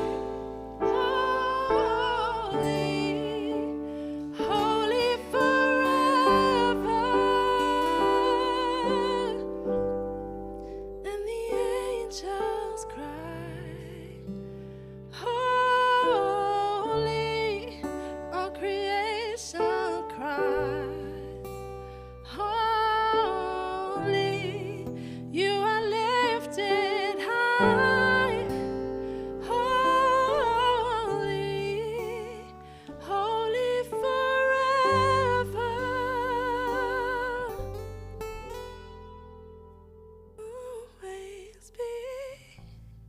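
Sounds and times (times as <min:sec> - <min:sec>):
person singing with vibrato: 0:00.0 - 0:09.9, 0:11.0 - 0:14.4, 0:15.1 - 0:21.6, 0:22.2 - 0:37.7.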